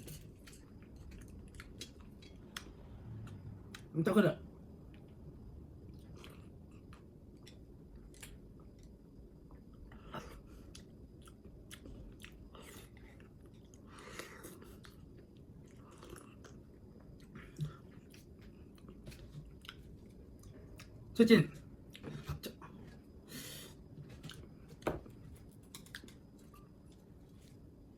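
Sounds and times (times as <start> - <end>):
person chewing food: 0.0 - 3.9, 5.8 - 21.0, 23.8 - 27.7.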